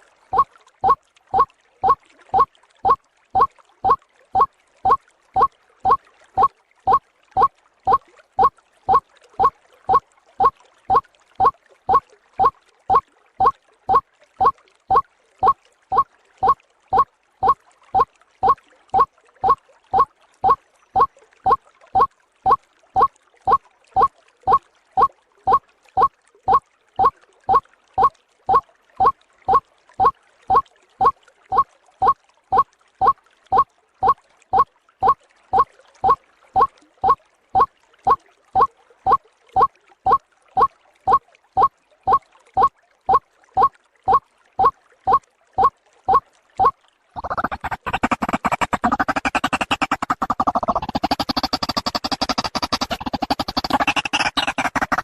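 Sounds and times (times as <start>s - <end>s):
waterhen call: 13.9s - 30.6s, 43.6s - 55.0s.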